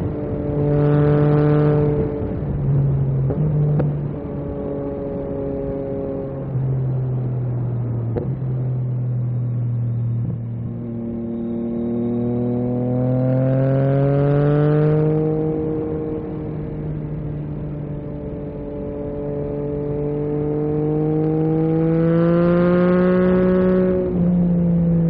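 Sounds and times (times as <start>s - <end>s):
motorcycle engine revving: 9.8s - 25.0s.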